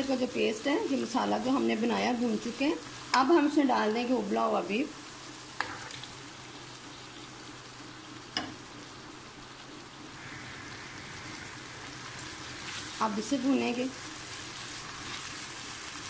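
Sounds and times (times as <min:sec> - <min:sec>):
meat sizzling in a pan: 0:00.0 - 0:16.0
spatula stirring in a pan: 0:05.1 - 0:07.3, 0:10.2 - 0:16.0.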